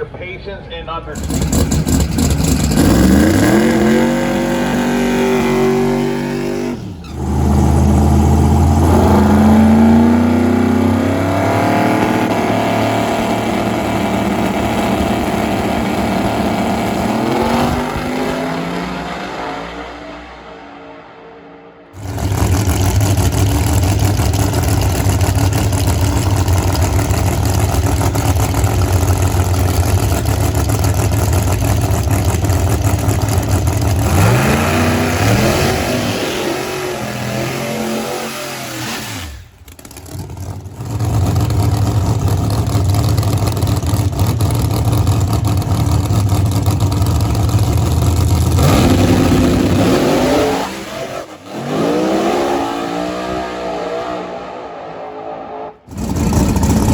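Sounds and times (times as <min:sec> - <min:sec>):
drag racing cars at full throttle: 0:00.0 - 0:56.9.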